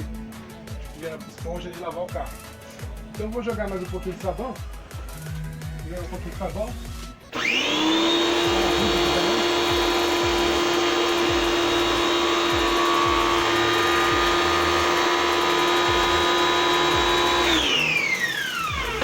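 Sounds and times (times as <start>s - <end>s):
pressure washer motor whining: 7.2s - 19.0s.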